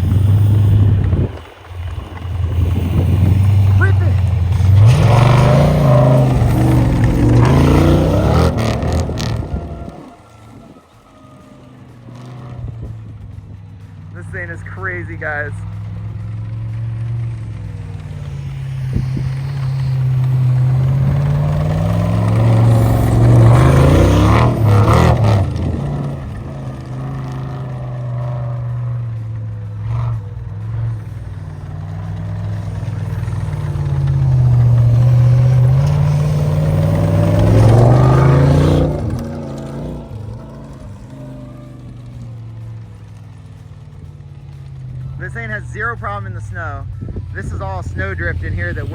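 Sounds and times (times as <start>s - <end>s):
snowcat engine running: 0.0s - 48.9s.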